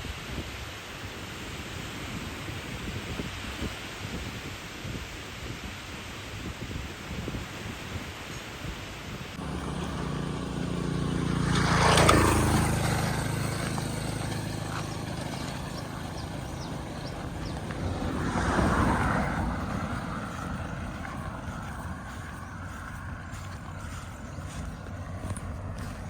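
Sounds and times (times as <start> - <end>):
motor vehicles passing by: 9.4 - 26.0.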